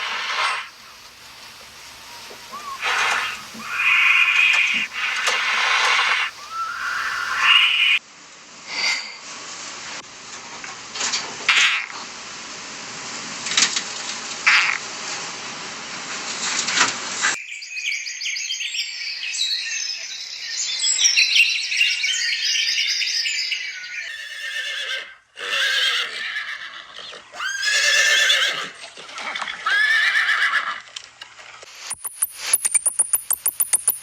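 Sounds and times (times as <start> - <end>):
high-pitched animal calls: 0.0 - 8.0, 23.5 - 28.7.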